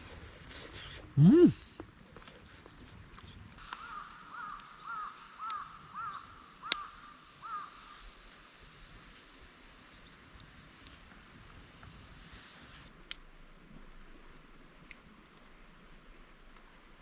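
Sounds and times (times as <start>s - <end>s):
crow cawing: 3.7s - 8.0s.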